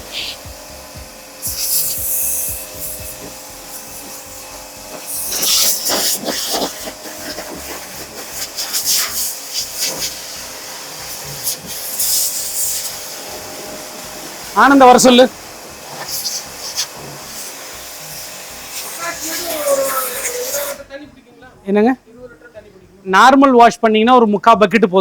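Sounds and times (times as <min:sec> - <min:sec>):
pressure washer spraying water: 0:00.0 - 0:20.9.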